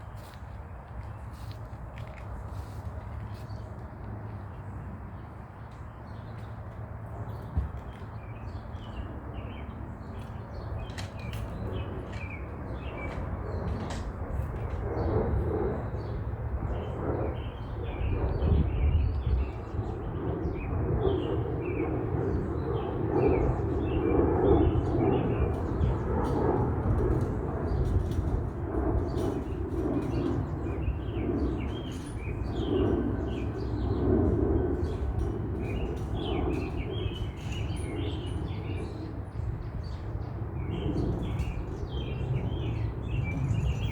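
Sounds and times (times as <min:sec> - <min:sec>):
small birds chirping: 0:29.0 - 0:43.9.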